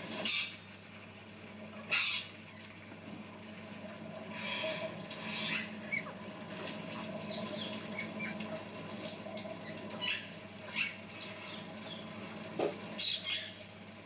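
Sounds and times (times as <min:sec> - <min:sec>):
parrot chirping and squeaking: 0:04.4 - 0:06.1.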